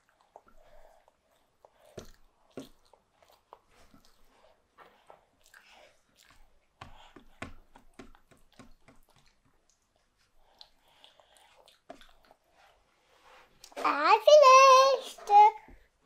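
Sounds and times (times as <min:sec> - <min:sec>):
toddler chewing: 0:00.0 - 0:12.8.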